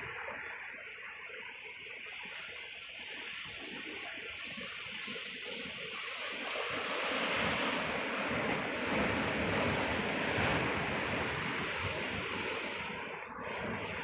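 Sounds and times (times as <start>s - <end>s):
ocean waves breaking on beach: 0.0s - 14.0s
wind on microphone: 3.3s - 14.0s.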